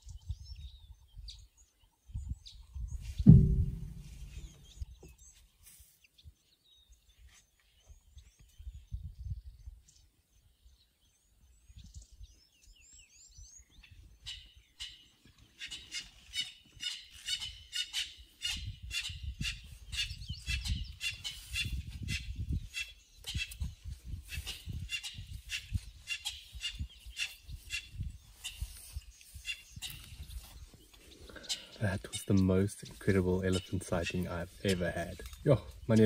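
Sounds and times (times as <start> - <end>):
birds chirping: 0.0 - 5.4, 6.6 - 36.0
low thumps and rumbling: 3.2 - 4.8.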